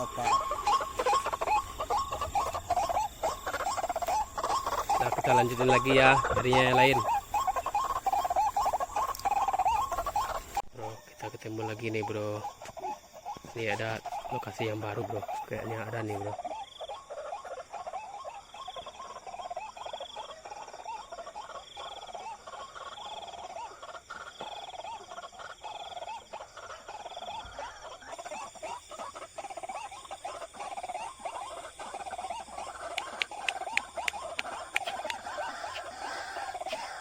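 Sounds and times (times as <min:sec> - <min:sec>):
rapid animal chirps: 0:00.0 - 0:37.0
sharp clicks: 0:32.9 - 0:35.2.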